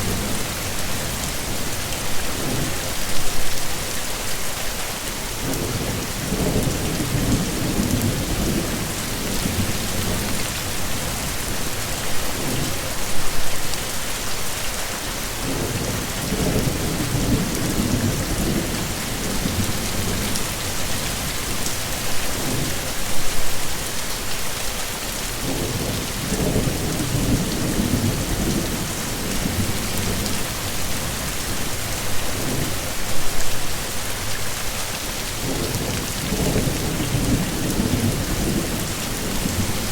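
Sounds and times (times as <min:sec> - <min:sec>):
heavy rain falling: 0:00.0 - 0:39.9
low rolling thunder: 0:25.4 - 0:30.7, 0:35.4 - 0:39.9.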